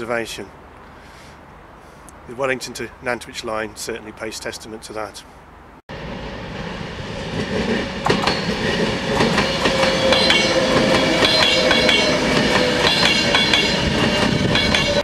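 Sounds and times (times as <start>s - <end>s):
train whine: 5.9s - 15.0s
train wheels clicking over rails: 7.2s - 15.0s.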